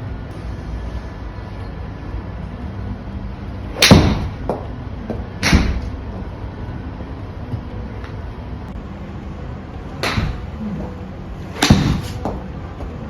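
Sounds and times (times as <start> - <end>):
golf club striking ball: 3.8 - 4.7, 5.4 - 6.0, 10.0 - 10.6, 11.5 - 12.5.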